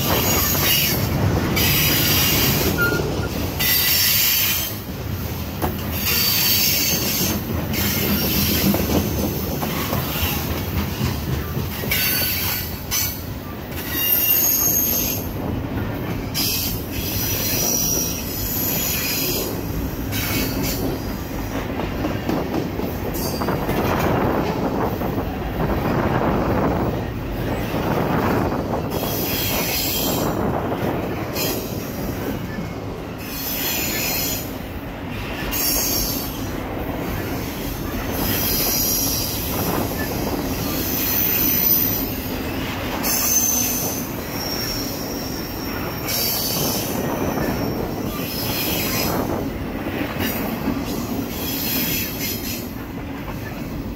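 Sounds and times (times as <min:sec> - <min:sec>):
freight train wheels rumbling: 0:00.0 - 0:53.9
high-pitched wheel squeals: 0:01.6 - 0:04.6.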